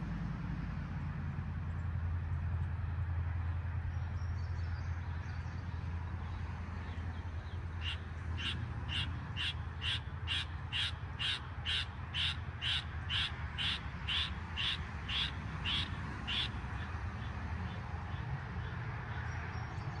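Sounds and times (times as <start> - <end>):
bird calling: 7.8 - 16.6.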